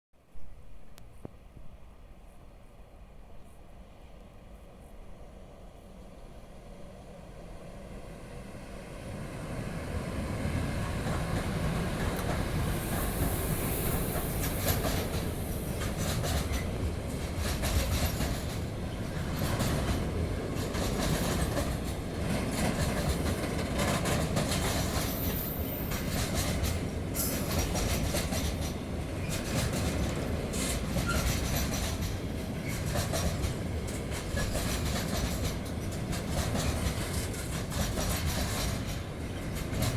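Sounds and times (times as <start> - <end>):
freight train rumbling over bridge: 0.7 - 39.9
wheels clattering over rail joints: 14.1 - 39.9.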